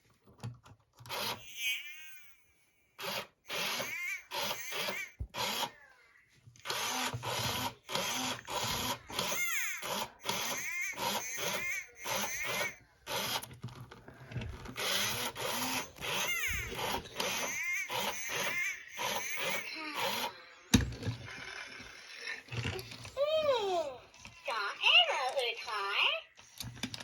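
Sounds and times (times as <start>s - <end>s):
toy electronic chatter: 1.1s - 2.4s, 3.0s - 5.8s, 6.7s - 13.5s, 14.7s - 22.8s.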